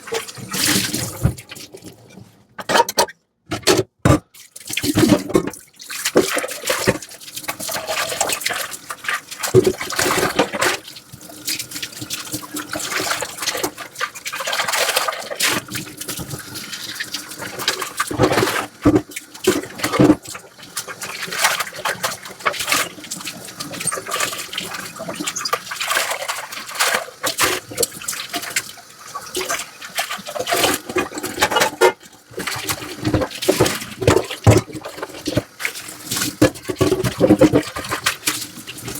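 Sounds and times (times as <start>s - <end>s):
water running and splashing: 0.0s - 2.0s, 4.4s - 38.9s
dishes scrubbing and clattering: 0.0s - 38.9s.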